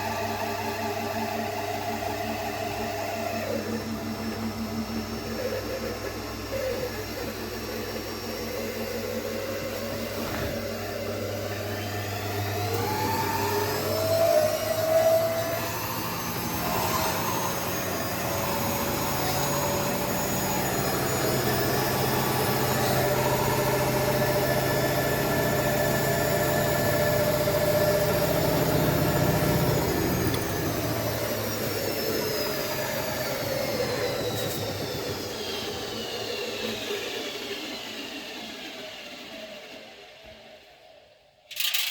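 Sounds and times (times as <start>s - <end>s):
electric motor whining: 5.0s - 36.0s.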